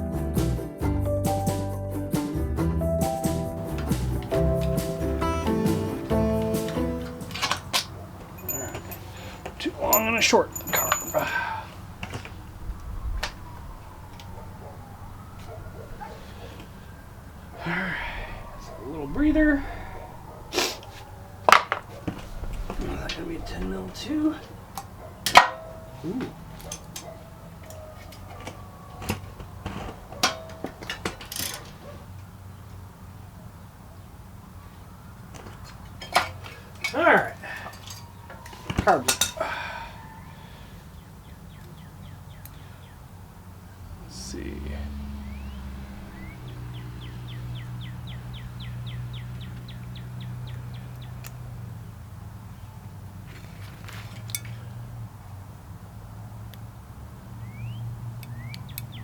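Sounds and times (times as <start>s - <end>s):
metal tools clinking: 3.8s - 12.4s, 25.2s - 31.8s, 35.4s - 39.6s, 53.4s - 54.7s
small parts rattling: 3.8s - 12.5s, 26.5s - 31.8s, 35.4s - 39.5s
low hum: 11.7s - 26.2s
bird singing descending notes: 11.8s - 26.6s, 43.7s - 51.4s, 57.3s - 59.0s.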